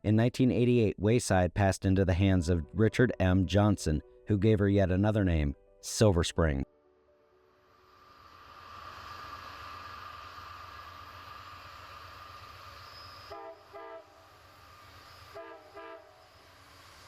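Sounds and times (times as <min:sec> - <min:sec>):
train rumbling: 0:08.2 - 0:17.0
locomotive horn blasts: 0:13.3 - 0:14.2, 0:15.3 - 0:16.3.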